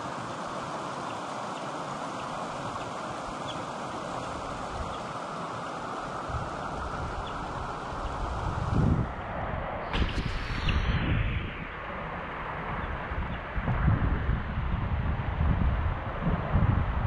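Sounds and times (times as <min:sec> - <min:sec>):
creek water flowing over rocks: 0:00.0 - 0:08.4
wind buffeting microphone: 0:06.1 - 0:17.0.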